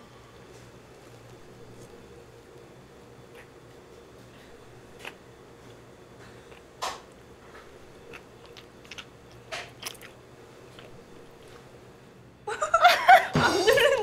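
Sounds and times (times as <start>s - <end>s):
steady low hum: 0.0s - 14.0s
quiet chewing of food: 4.2s - 6.7s, 7.5s - 11.7s
crunchy bites: 8.0s - 11.0s.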